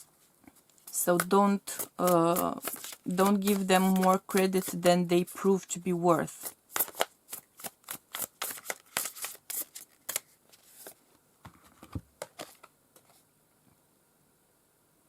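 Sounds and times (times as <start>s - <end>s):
cards being shuffled: 0.0s - 5.7s, 6.4s - 13.2s.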